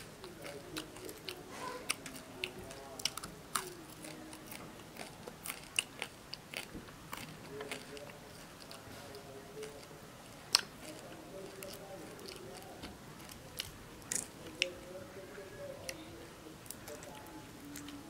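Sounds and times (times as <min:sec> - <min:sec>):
chewing with sharp crunches: 0:00.0 - 0:14.9, 0:16.6 - 0:18.0.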